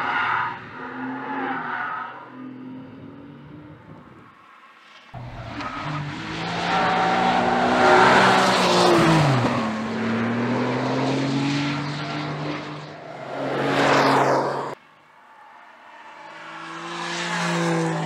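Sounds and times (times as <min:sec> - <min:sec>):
car engine accelerating: 0:05.2 - 0:14.8.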